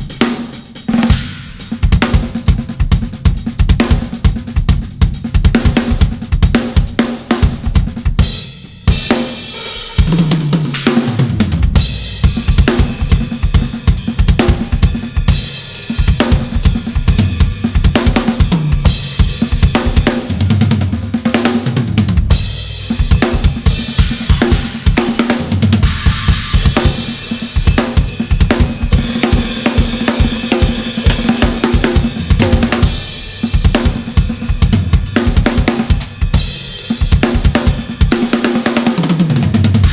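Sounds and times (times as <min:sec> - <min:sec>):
kick drum strokes: 0:00.0 - 0:39.9
snare drum: 0:09.1 - 0:11.7, 0:23.0 - 0:36.1
cymbal crashes: 0:25.8 - 0:28.0.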